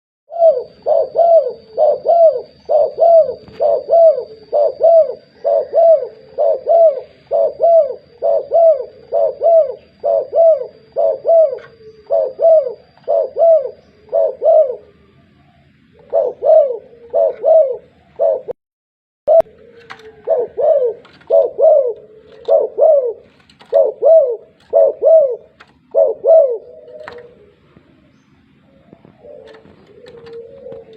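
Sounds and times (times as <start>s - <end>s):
dove cooing: 0.3s - 18.6s, 19.3s - 30.9s.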